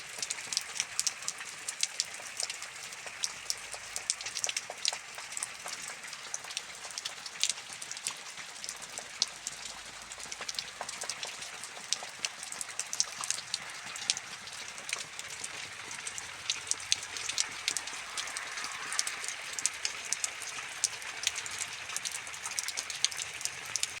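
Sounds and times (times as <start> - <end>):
rain falling steadily: 0.0 - 24.0.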